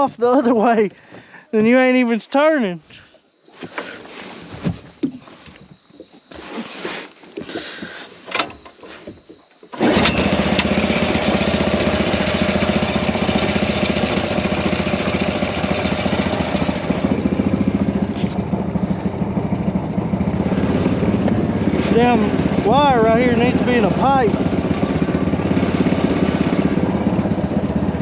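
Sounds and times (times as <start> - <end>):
small engine idling fast: 9.7 - 28.0.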